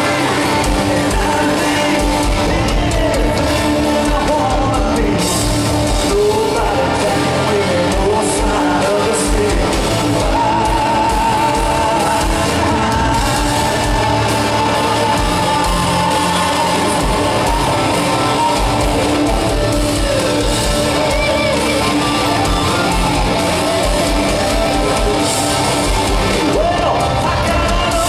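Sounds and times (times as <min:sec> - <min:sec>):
country-rock band playing: 0:00.0 - 0:28.0
electric guitar bent notes: 0:08.9 - 0:28.0.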